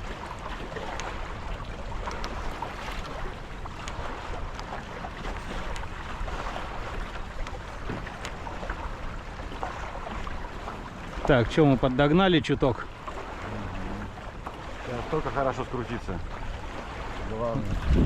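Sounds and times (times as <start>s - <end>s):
water rushing past boat hulls: 0.0s - 18.0s
faint ticks: 0.9s - 1.1s, 3.8s - 6.0s
wind rumble on microphone: 12.9s - 18.0s.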